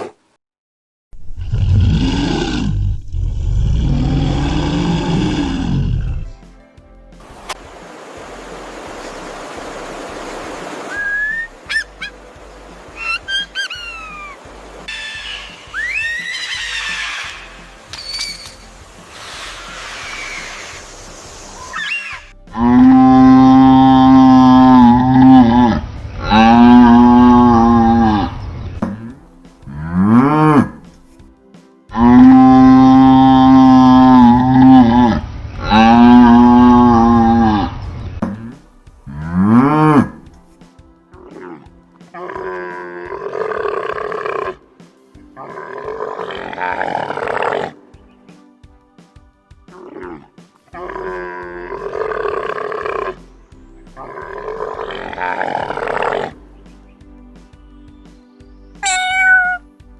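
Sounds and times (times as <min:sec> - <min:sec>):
large animal calling: 0:01.3 - 0:06.3, 0:10.9 - 0:12.2, 0:13.0 - 0:18.4, 0:21.6 - 0:31.0, 0:31.9 - 0:40.4, 0:45.4 - 0:47.8, 0:49.8 - 0:53.2, 0:54.0 - 0:56.4, 0:58.8 - 0:59.7
cattle mooing: 0:22.6 - 0:30.9, 0:32.0 - 0:40.3, 0:45.5 - 0:47.8, 0:54.1 - 0:56.4.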